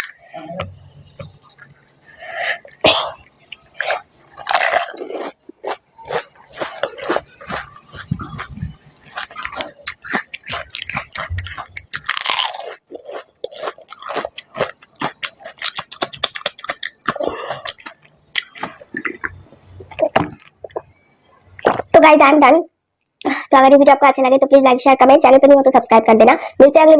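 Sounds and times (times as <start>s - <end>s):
chewing crunchy snack shells: 3.8s - 19.4s
wet mouth clicks: 14.9s - 21.0s.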